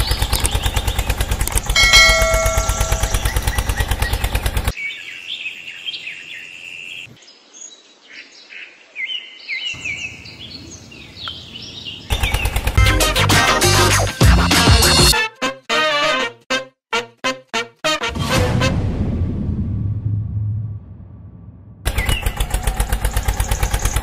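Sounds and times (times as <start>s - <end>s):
birds chirping: 0.0s - 12.8s, 21.9s - 24.0s
loud fast pulsing sound: 1.7s - 4.7s
loud music: 12.8s - 15.2s.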